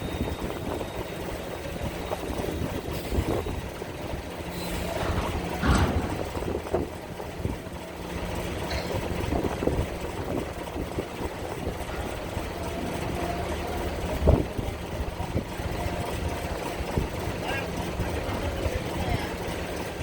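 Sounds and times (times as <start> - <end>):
wind buffeting microphone: 0.0 - 17.4
ferry engine humming: 0.0 - 20.0
thump: 5.0 - 6.5.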